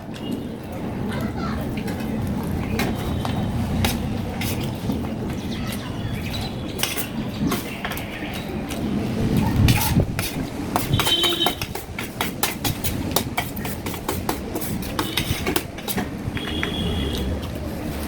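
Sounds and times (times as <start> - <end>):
utensils clinking on a plate: 6.8 - 8.5.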